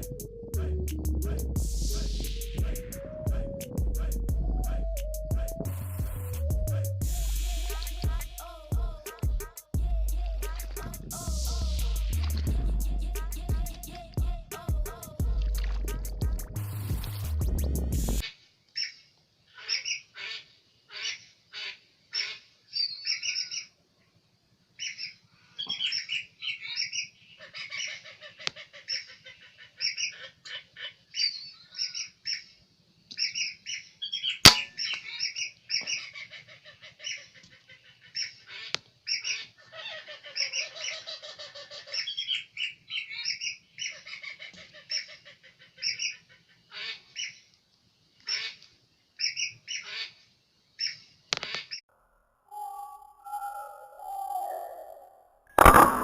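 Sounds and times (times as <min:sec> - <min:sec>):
whistling ducks calling: 0:00.0 - 0:00.5, 0:01.8 - 0:03.7
sharp crack: 0:34.5 - 0:35.0, 0:55.6 - 0:56.0.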